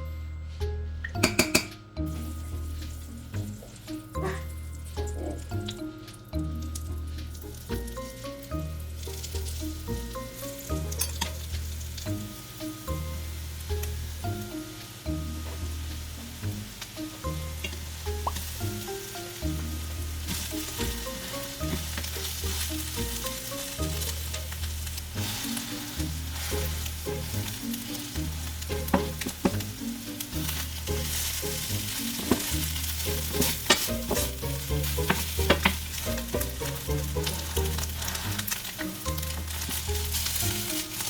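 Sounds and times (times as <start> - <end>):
food sizzling in a pan: 1.2 - 41.0
utensil scraping and clicking on pan: 27.8 - 41.0.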